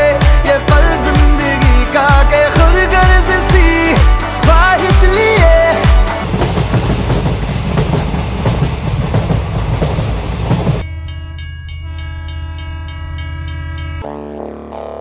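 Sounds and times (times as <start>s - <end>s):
train rumbling: 4.4s - 14.0s.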